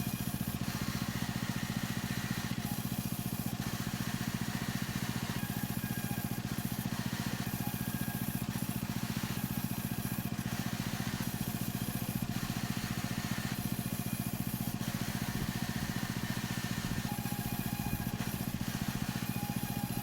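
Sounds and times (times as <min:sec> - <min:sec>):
cutting machine running: 0:10.2 - 0:20.0.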